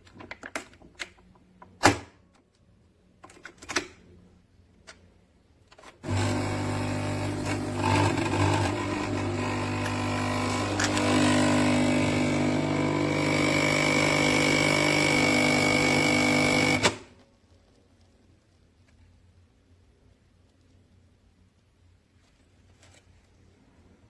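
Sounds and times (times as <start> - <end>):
coffee machine pump buzzing: 6.0 - 17.1.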